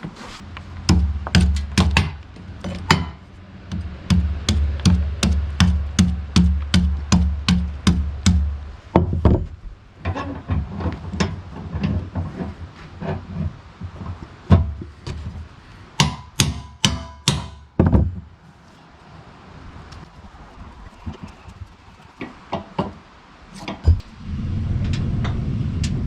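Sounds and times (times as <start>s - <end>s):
sharp knocking strikes: 0.9s - 9.5s.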